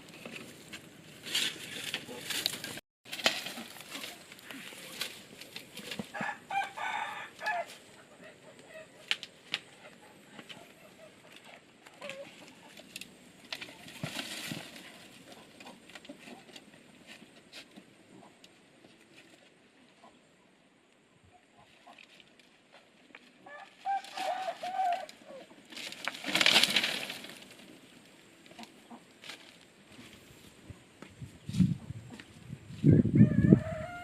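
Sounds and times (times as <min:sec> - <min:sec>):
chickens clucking: 0:03.8 - 0:19.1, 0:19.7 - 0:20.4, 0:21.3 - 0:22.2, 0:27.9 - 0:29.2, 0:31.4 - 0:34.0
chicken drawn-out call: 0:06.0 - 0:09.0, 0:23.4 - 0:25.6, 0:32.9 - 0:34.0
sharp clicks and rustles: 0:25.0 - 0:27.8.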